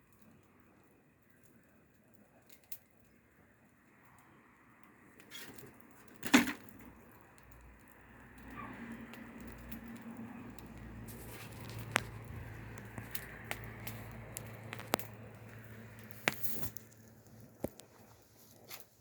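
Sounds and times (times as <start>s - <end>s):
low fire rumble: 0.0s - 19.0s
wood fire crackling: 0.0s - 19.0s.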